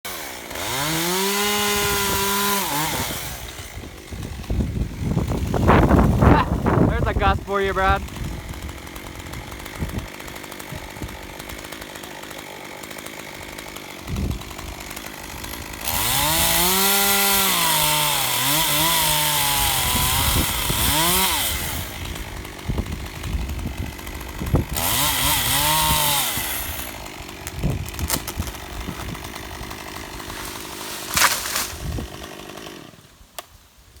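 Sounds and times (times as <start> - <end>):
chainsaw cutting: 0.0 - 34.0
wind rumble on microphone: 2.9 - 8.7.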